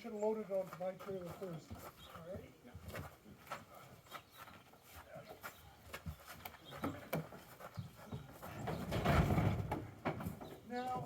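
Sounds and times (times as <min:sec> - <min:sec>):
heavy wood scraping along: 0:06.1 - 0:10.6
wooden object knocking and clattering: 0:08.5 - 0:10.6.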